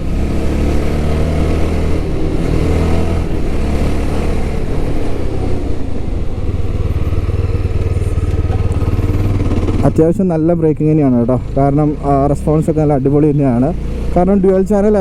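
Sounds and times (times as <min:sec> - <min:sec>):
motorcycle engine idling: 0:04.7 - 0:15.0.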